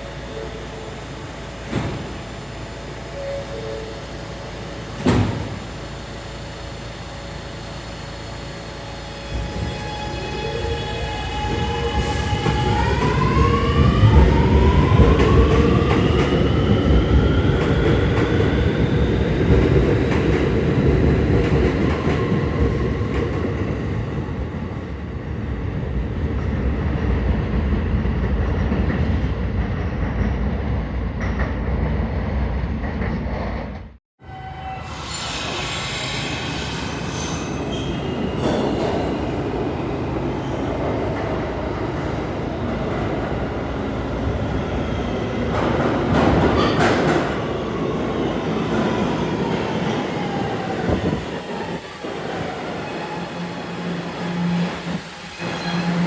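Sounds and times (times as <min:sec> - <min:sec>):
subway train propulsion whine: 0:00.0 - 0:56.0
train running on rails: 0:00.0 - 0:56.0.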